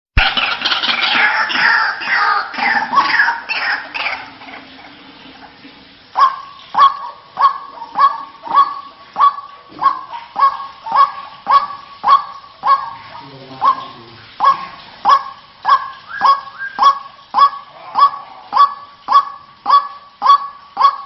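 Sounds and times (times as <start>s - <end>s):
waterhen calling: 0.2s - 21.0s.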